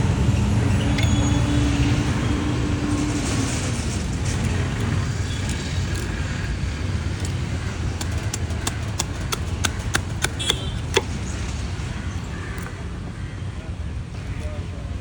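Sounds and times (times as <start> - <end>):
low traffic rumble: 0.0 - 15.0
knife chopping on cutting board: 8.0 - 11.1.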